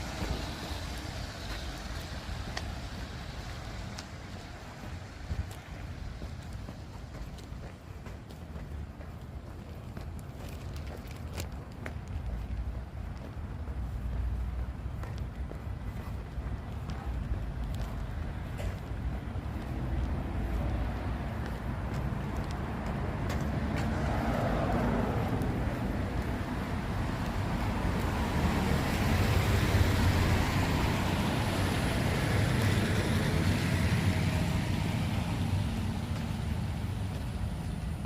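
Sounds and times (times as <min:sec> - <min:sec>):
tyre hiss on wet street: 0:00.0 - 0:08.8, 0:12.4 - 0:38.0
vehicle engine rumble: 0:00.0 - 0:38.0.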